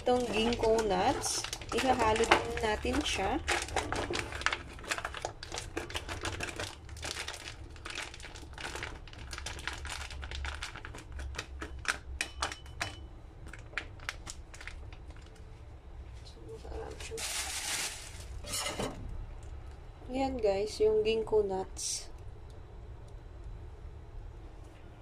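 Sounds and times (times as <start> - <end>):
plastic packet crinkling: 0.0 - 11.9, 13.4 - 15.4, 17.1 - 18.4.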